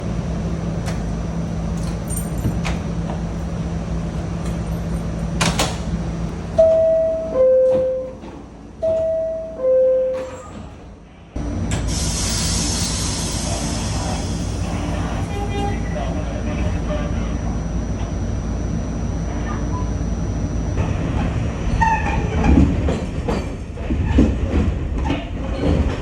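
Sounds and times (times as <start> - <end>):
subway train humming: 0.0 - 26.0
two-note door chime: 6.6 - 10.5
loud rush of hissing noise: 11.8 - 15.3.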